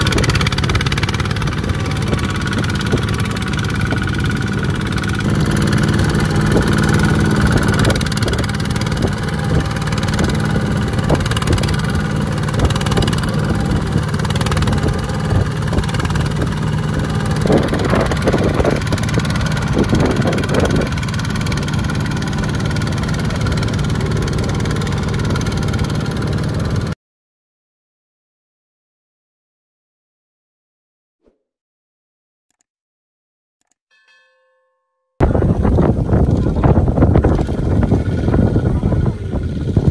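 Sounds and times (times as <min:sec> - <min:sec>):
tractor engine running: 0:00.0 - 0:27.0, 0:35.2 - 0:39.9.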